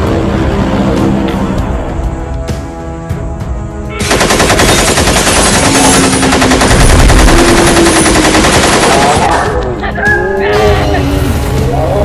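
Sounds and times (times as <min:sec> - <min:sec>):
background music: 0:00.0 - 0:12.0
automatic machine-gun fire: 0:04.0 - 0:09.5.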